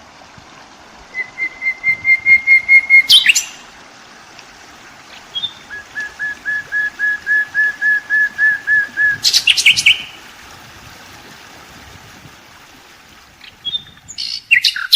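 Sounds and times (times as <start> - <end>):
sharp bird chirp: 2.8 - 3.6.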